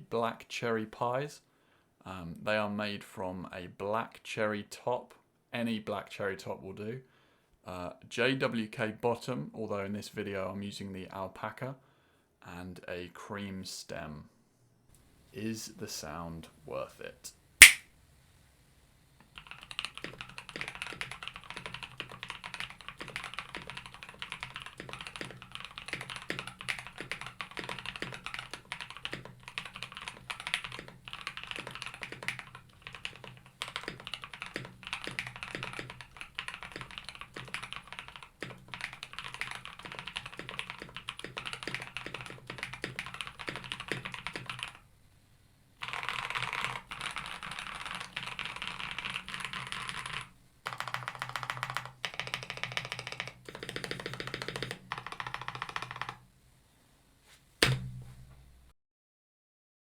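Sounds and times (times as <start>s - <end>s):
typing on mechanical keyboard: 19.3s - 44.8s, 45.8s - 56.2s.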